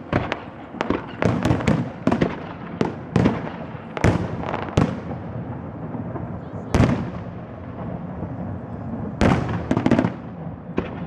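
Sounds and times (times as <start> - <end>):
fireworks bangs with echo: 0.0 - 11.0.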